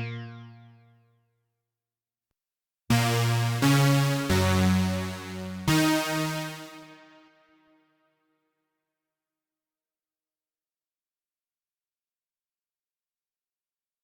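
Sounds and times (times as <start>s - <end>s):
synthesizer chord stabs: 0.0s - 0.9s, 2.9s - 7.6s.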